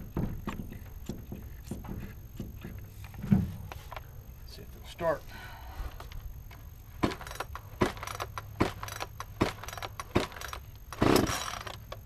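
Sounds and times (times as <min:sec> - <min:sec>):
chainsaw starter cord pulls: 0:07.0 - 0:12.0.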